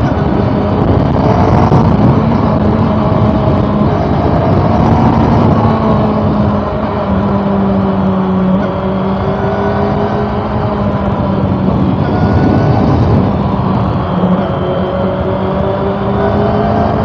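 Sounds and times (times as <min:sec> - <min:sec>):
dense rush of noise: 0:00.0 - 0:17.0
motorcycle engine running: 0:00.0 - 0:17.0.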